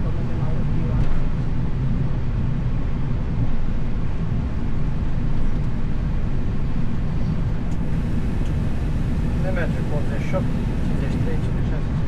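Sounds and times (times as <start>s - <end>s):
jet engines idling: 3.7s - 12.0s
cockpit airflow: 5.5s - 12.0s.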